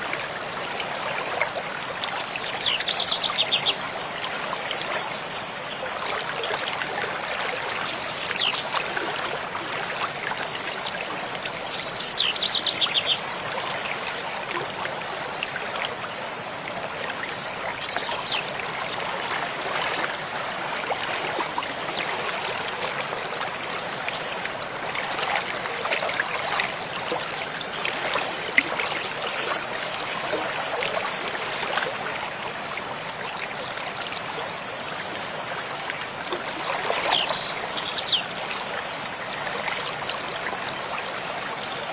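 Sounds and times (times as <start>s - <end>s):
mountain stream flowing: 0.0s - 41.9s
songbird trilling: 37.0s - 38.2s.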